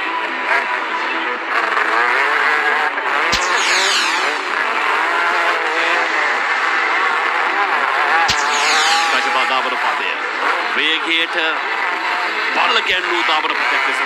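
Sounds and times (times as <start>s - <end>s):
motocross bikes revving: 1.6s - 14.0s.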